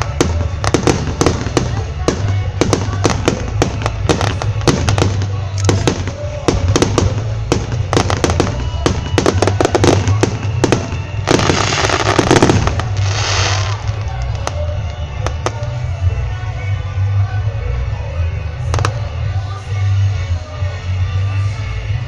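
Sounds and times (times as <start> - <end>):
fireworks banging: 0.0 - 16.0
fireworks crackling: 0.0 - 16.3, 18.6 - 20.8.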